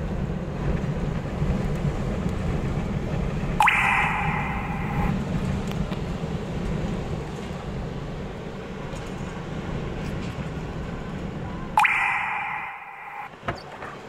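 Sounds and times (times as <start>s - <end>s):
gusty wind buffeting car: 0.0s - 3.6s.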